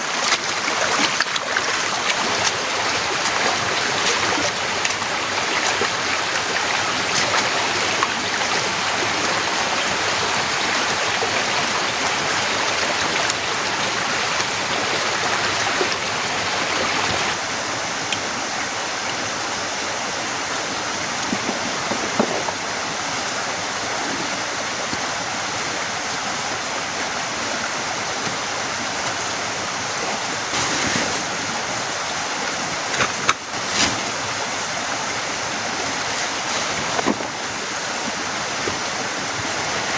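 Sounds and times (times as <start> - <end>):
heavy rain pouring: 2.2 - 17.4.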